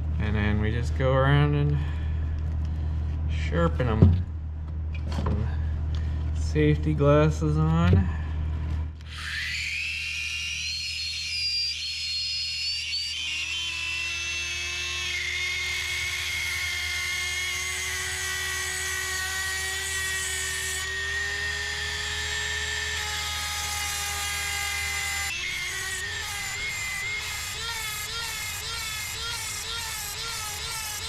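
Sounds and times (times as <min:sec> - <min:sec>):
rotary tool grinding whine: 0:09.0 - 0:31.0.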